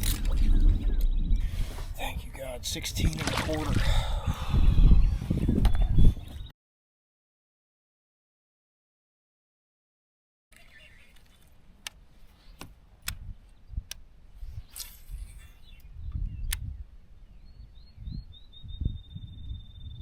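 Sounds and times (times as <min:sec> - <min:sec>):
low rumble: 0:00.0 - 0:02.7
high bird trill: 0:14.6 - 0:16.5.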